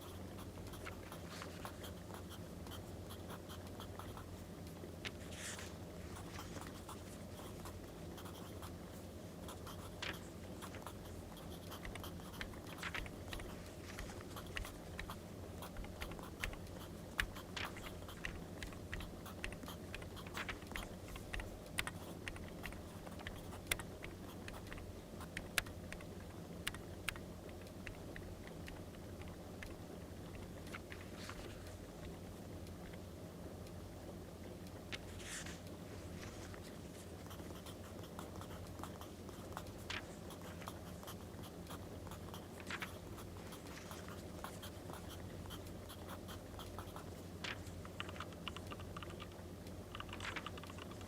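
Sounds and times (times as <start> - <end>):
pen scratching on paper: 9.5 - 26.1.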